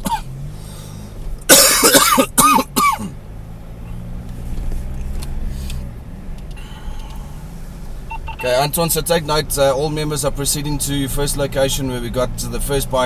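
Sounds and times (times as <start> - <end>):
person coughing loudly: 0.0 - 0.3, 1.5 - 3.2
car engine hum: 0.0 - 13.0.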